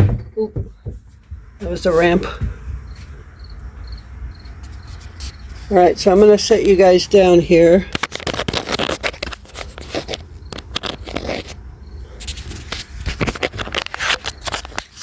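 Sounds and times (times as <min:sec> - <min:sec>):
clicks knocks and scrapes: 0:07.9 - 0:11.6, 0:12.2 - 0:15.0
camera handling noise: 0:08.0 - 0:11.6.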